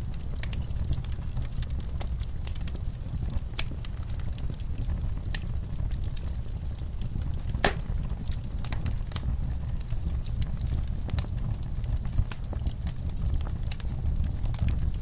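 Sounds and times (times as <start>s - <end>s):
burning logs crackling: 0.0s - 15.0s
low rumble of flames: 0.0s - 15.0s.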